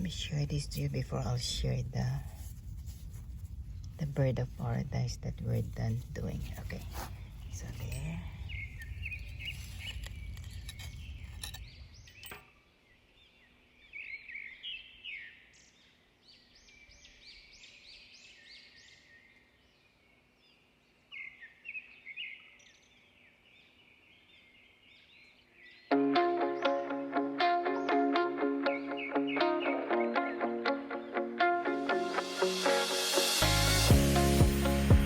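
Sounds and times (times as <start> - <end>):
low rumble: 0.0 - 12.3
small birds chirping: 3.9 - 26.9, 27.6 - 31.4
plucked guitar music: 25.9 - 35.0.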